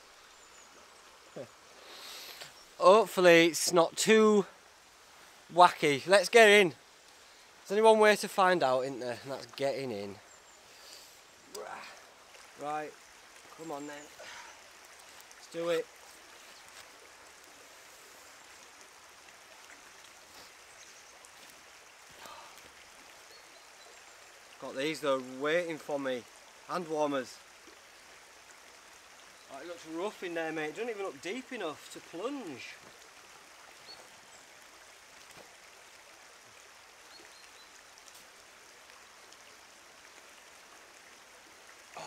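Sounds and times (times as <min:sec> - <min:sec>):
running water: 0:00.0 - 0:42.0
soft rustle: 0:14.9 - 0:18.6.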